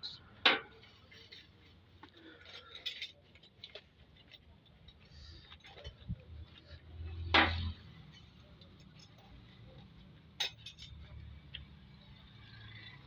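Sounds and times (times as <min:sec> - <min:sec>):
metallic clinks of tools: 0:10.4 - 0:11.2.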